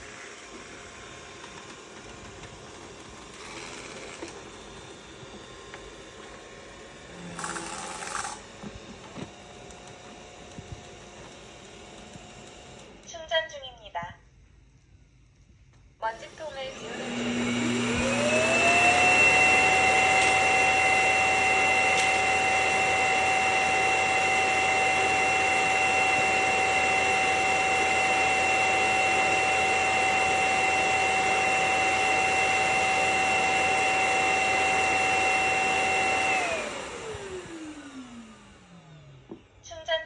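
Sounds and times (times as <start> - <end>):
vacuum suction motor whine: 0.0 - 13.2, 16.0 - 39.8.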